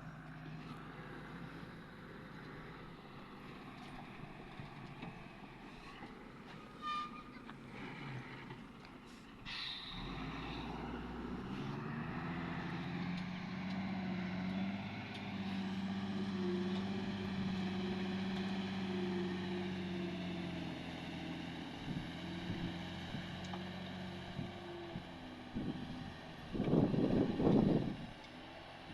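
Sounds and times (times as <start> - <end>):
heavy diesel engine revving: 7.6 - 28.2.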